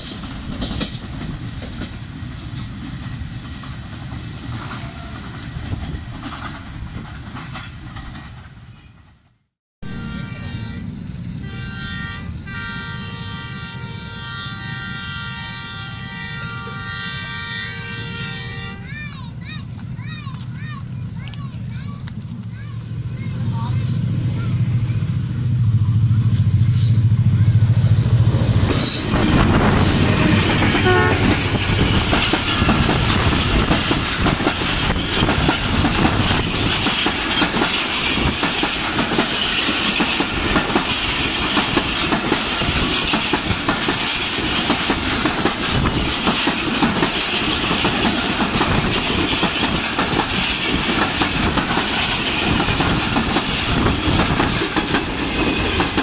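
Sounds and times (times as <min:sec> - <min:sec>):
wheels clacking over rail joints: 0:00.0 - 0:09.4, 0:28.0 - 0:56.0
train coaches rumbling past: 0:00.0 - 0:56.0
train horn: 0:09.8 - 0:19.0, 0:29.0 - 0:31.7.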